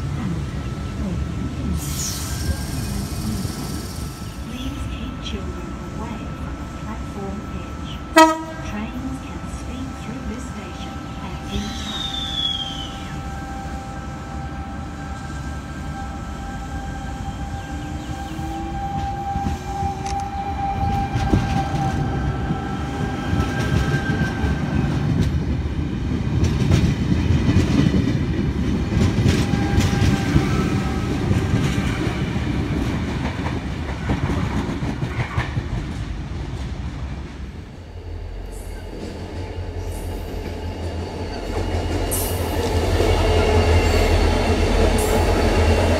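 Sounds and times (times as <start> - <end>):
diesel locomotives humming: 0.0 - 45.9
train wheels rumbling and clacking: 14.8 - 45.9.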